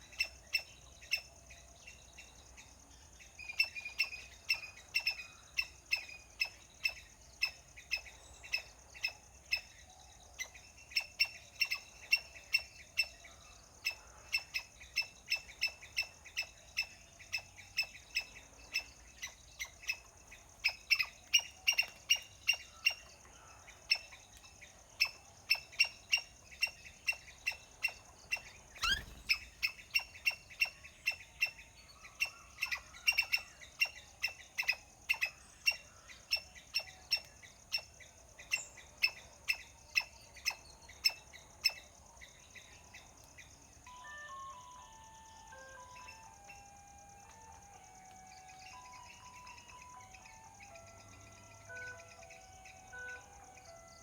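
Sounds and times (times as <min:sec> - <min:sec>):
small animal chirping calls: 0:13.8 - 0:23.0, 0:25.0 - 0:41.8.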